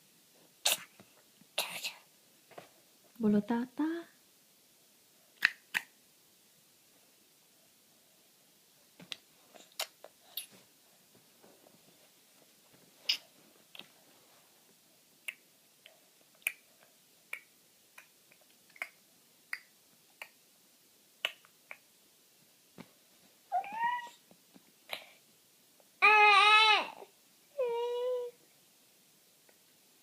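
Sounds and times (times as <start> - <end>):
baby clicking throat noises: 5.4 - 5.9, 9.1 - 10.6, 15.2 - 20.4, 21.2 - 21.9
baby squealing: 23.5 - 24.2.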